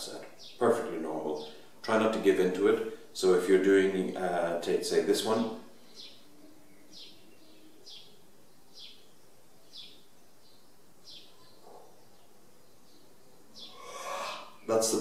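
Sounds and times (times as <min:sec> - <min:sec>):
background hiss: 0:00.0 - 0:15.0
small bird chirping: 0:05.8 - 0:15.0.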